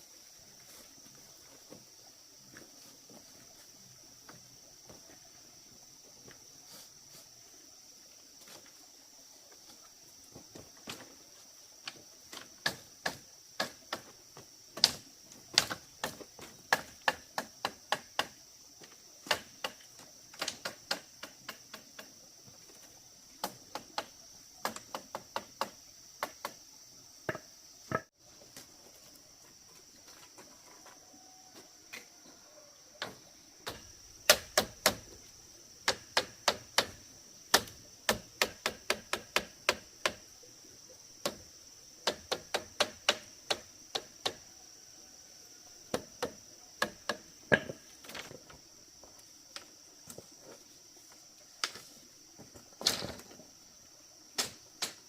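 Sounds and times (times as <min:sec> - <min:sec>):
hand tool chopping bamboo: 0:14.8 - 0:18.4, 0:19.2 - 0:19.8, 0:33.6 - 0:35.0, 0:35.8 - 0:40.2, 0:42.0 - 0:44.4.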